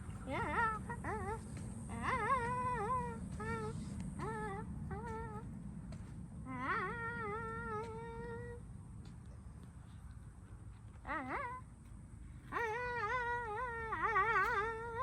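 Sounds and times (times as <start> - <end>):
child imitating engine revs: 0.0 - 5.4, 6.5 - 8.6.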